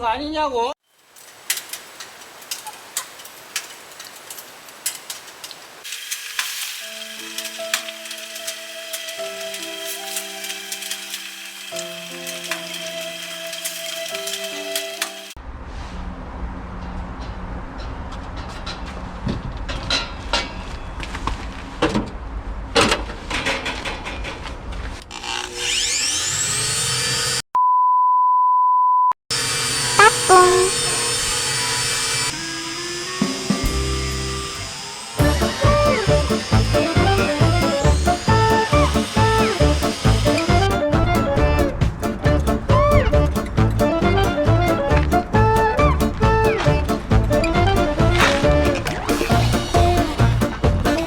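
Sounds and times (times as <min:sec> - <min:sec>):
wood fire crackling and popping: 0:01.0 - 0:15.1
music: 0:06.8 - 0:15.4, 0:33.2 - 0:34.4, 0:35.2 - 0:51.0
electric motor whine: 0:25.4 - 0:27.4, 0:29.3 - 0:40.8.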